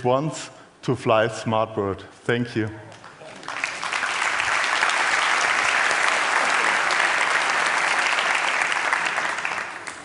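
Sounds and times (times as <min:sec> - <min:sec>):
audience clapping: 0:02.9 - 0:10.0.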